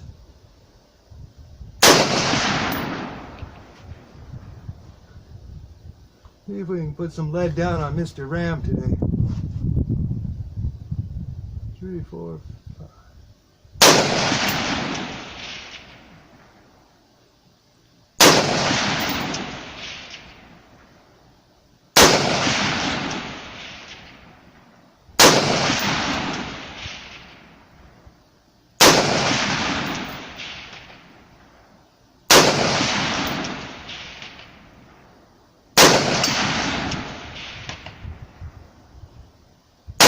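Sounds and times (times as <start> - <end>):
rifle shots echoing: 1.8 - 3.8, 13.8 - 16.6, 18.2 - 20.8, 22.0 - 24.5, 25.2 - 27.6, 28.8 - 31.5, 32.3 - 35.1, 35.8 - 38.0.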